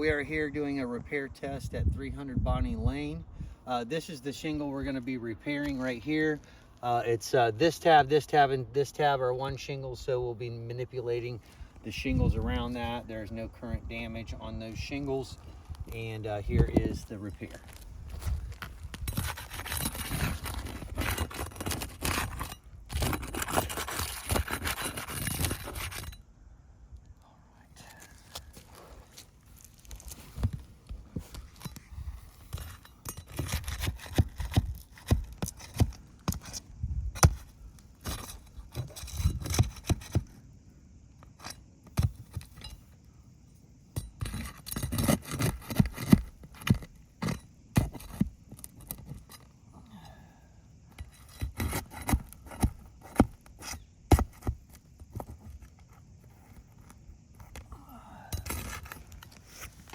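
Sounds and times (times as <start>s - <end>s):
roof shingles scraping and crackling: 16.9s - 26.1s.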